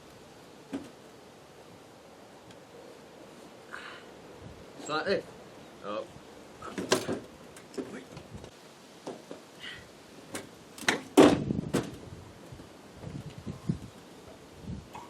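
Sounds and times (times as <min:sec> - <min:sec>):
knocks and clunks: 0:06.6 - 0:09.4, 0:10.3 - 0:12.0.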